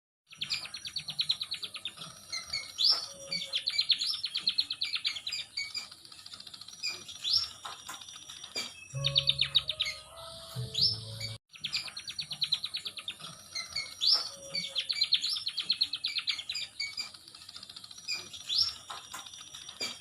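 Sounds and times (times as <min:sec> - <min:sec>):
birds chirping fast high notes: 0:08.8 - 0:12.8.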